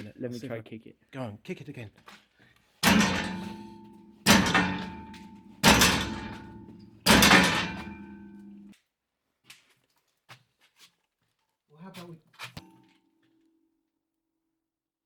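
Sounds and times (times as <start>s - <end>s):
metal gate kicked clanging: 2.8s - 8.7s
metallic ringing: 2.8s - 8.7s.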